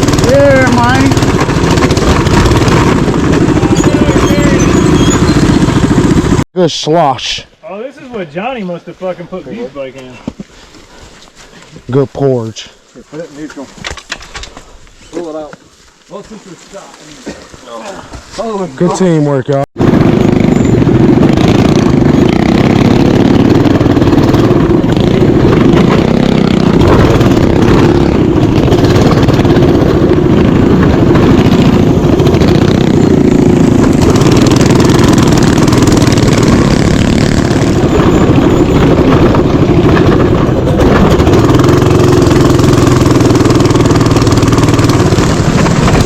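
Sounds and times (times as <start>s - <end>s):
mini bike engine running: 0.0s - 6.4s, 18.4s - 46.0s.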